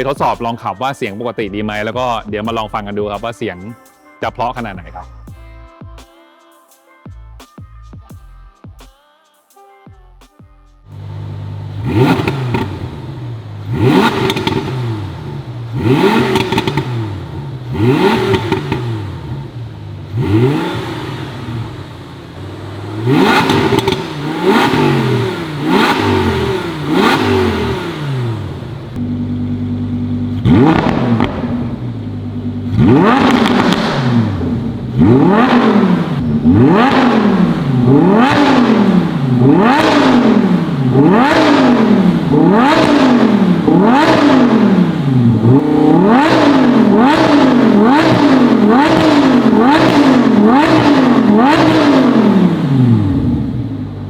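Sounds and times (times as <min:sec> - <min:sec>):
car engine revving: 0:10.9 - 0:54.0.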